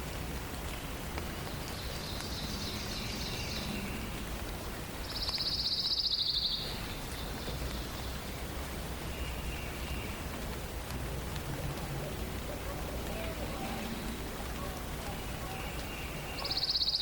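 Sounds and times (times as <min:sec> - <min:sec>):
forest ambience hiss: 0:00.0 - 0:11.9, 0:12.8 - 0:17.0
songbirds trilling: 0:01.5 - 0:04.4, 0:12.1 - 0:17.0.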